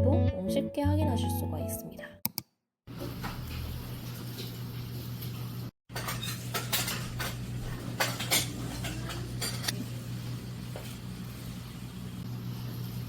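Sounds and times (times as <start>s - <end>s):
dishes clinking: 5.9s - 9.8s.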